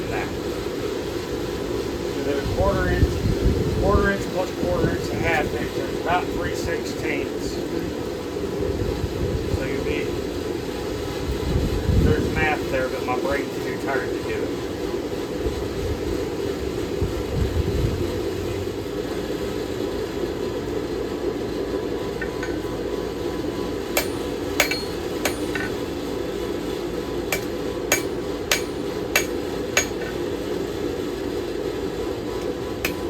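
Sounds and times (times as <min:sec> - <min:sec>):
hammer striking metal: 0:22.2 - 0:22.8, 0:23.9 - 0:25.9, 0:27.3 - 0:30.3.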